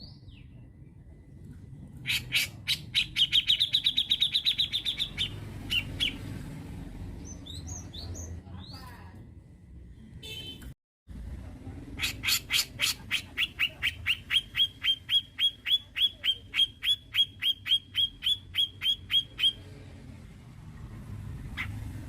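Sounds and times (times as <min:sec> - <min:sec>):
bird calling sharp repeated notes: 0:12.0 - 0:19.7.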